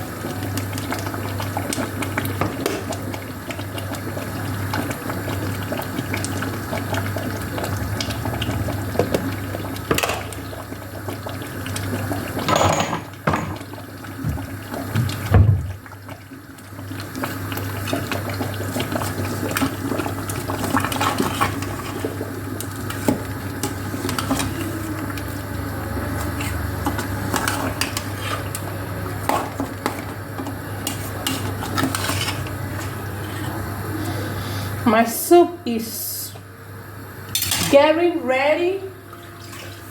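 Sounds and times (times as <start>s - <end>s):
pots and dishes clinking: 9.9s - 10.4s, 12.4s - 13.8s, 29.2s - 32.9s, 37.3s - 37.8s
water running and splashing: 13.6s - 33.0s, 39.2s - 39.9s.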